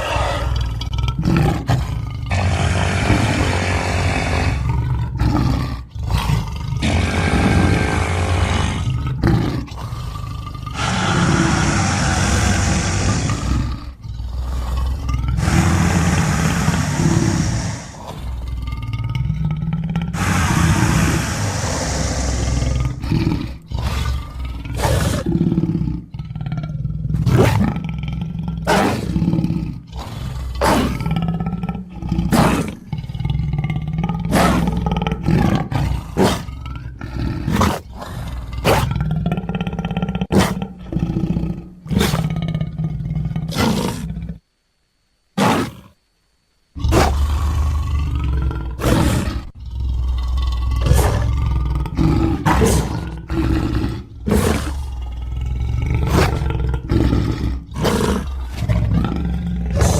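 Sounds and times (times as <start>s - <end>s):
creature roars and growls: 0.0s - 44.4s, 46.8s - 59.9s.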